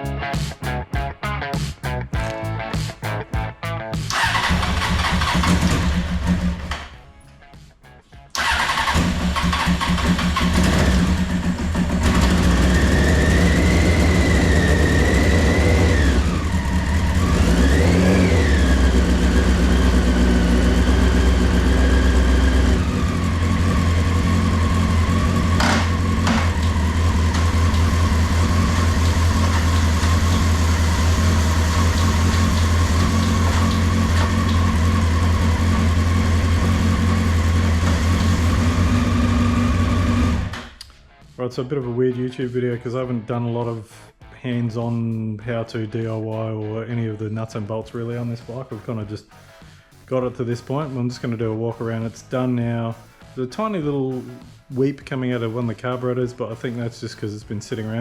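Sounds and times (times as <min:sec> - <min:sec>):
motorcycle engine revving: 0:04.0 - 0:06.9, 0:08.4 - 0:40.7
motorcycle engine idling: 0:04.1 - 0:06.7, 0:08.4 - 0:40.5.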